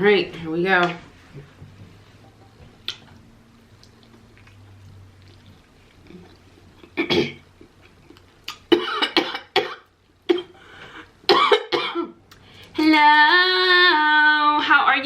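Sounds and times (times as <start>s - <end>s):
person coughing: 7.0s - 7.4s, 8.7s - 10.6s, 11.3s - 12.2s.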